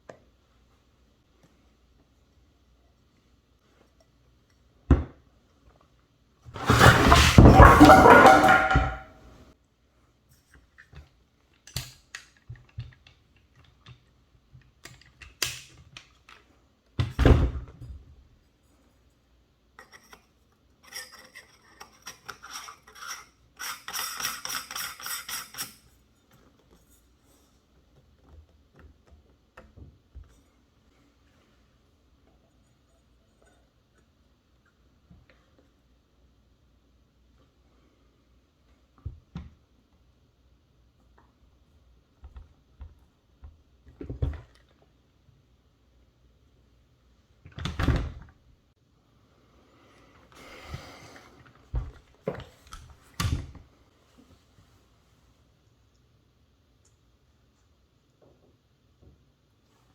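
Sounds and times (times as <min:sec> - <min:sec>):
objects clicking and knocking: 0:06.6 - 0:09.1.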